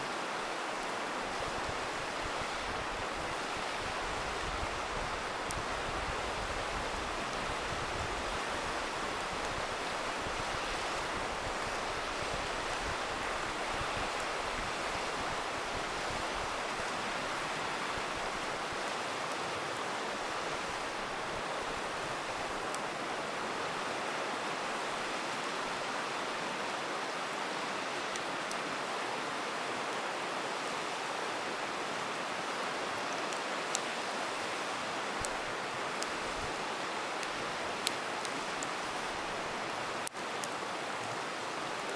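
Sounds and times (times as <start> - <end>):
river rushing: 0.0 - 41.9
campfire crackling and popping: 0.4 - 22.9, 33.2 - 41.9.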